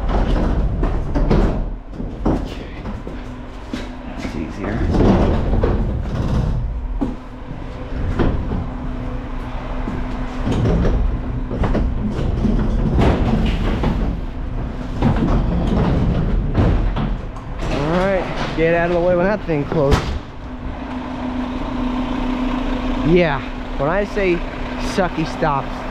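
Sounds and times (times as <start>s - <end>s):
metal clanks and rattles: 0.0s - 8.9s, 9.9s - 20.6s
garbage truck low rumble: 0.0s - 25.9s.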